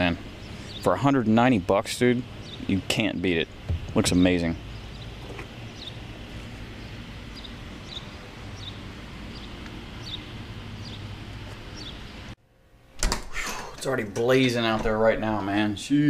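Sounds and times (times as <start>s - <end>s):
bird chirping: 0.0s - 1.4s, 2.2s - 11.1s, 11.7s - 12.4s
steady low rumble: 0.0s - 12.4s.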